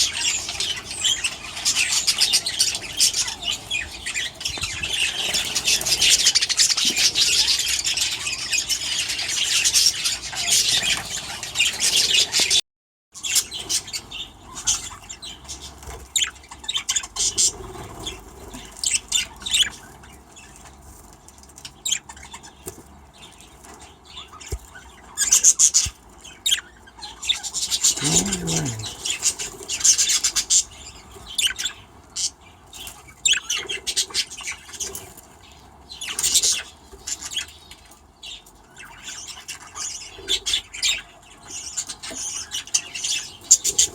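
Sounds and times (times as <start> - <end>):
budgerigars chattering and chirping: 0.0 - 12.6.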